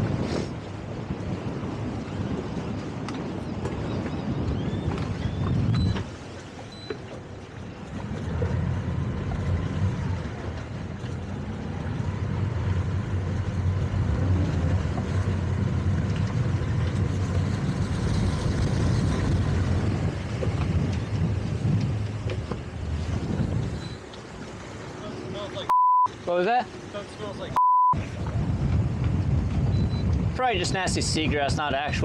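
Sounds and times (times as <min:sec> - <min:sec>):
boat engine droning: 0:00.0 - 0:30.4.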